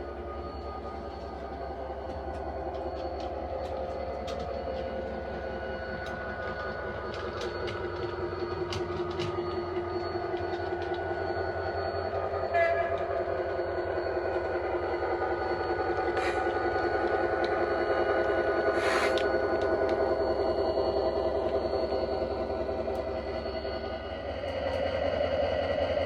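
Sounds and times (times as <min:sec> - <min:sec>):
model locomotive engine sound: 0:00.0 - 0:26.0.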